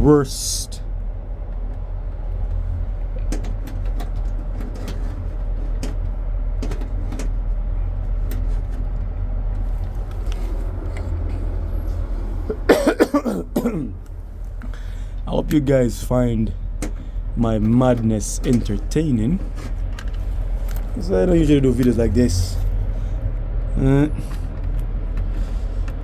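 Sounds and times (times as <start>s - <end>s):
steady low hum: 0.0s - 26.0s
person coughing: 12.5s - 14.0s
handling clicks and taps: 16.8s - 21.0s.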